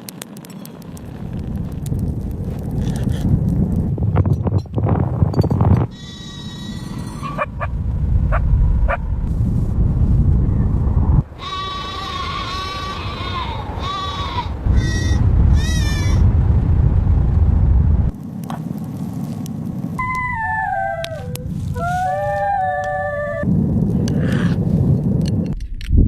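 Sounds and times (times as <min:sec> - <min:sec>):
steady low rumble: 0:00.1 - 0:26.0
livestock bleating: 0:11.4 - 0:15.0.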